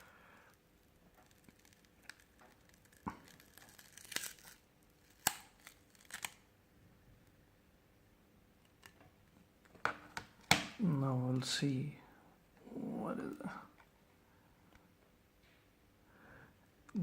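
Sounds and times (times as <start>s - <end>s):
plastic phone parts clicking: 1.2s - 6.4s.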